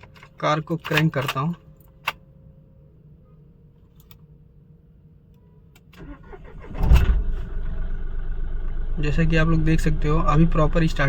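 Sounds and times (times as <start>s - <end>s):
faint hum: 1.5s - 11.0s
diesel engine starting and running: 6.0s - 11.0s.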